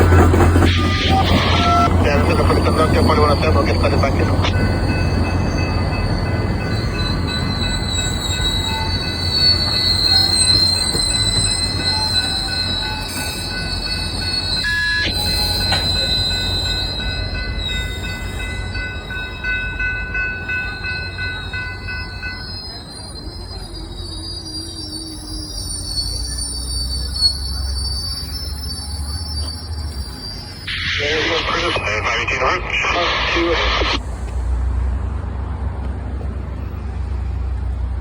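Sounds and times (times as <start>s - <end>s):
train wheels squealing on rails: 0.0s - 35.1s
train rolling rumble: 0.0s - 38.0s
steady high tones: 0.1s - 9.9s, 30.4s - 34.0s.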